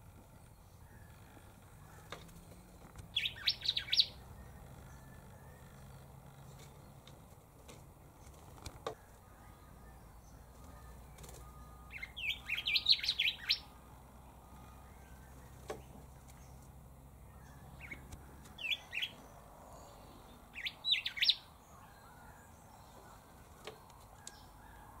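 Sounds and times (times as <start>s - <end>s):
bird whistling song: 3.1s - 5.9s, 9.0s - 13.8s, 17.4s - 19.9s, 20.5s - 23.2s.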